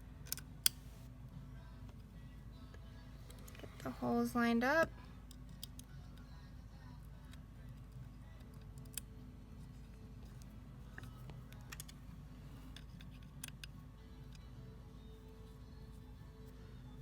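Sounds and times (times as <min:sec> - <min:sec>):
low steady background: 0:00.0 - 0:17.0
small metal parts clicking: 0:00.2 - 0:00.8, 0:07.2 - 0:09.1, 0:10.2 - 0:12.0, 0:12.7 - 0:14.5.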